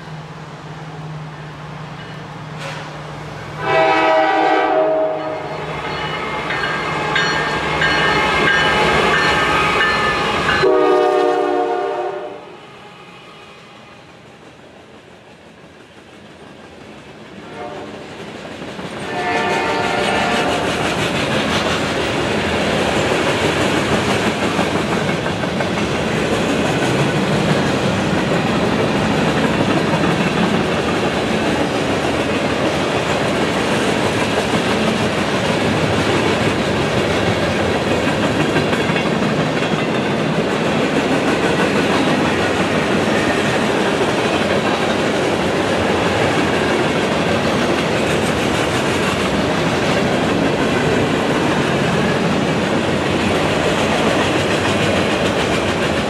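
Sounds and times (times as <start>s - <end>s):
freight cars rumbling on rails: 0.0s - 56.0s
clickety-clack over rail joints: 14.4s - 56.0s.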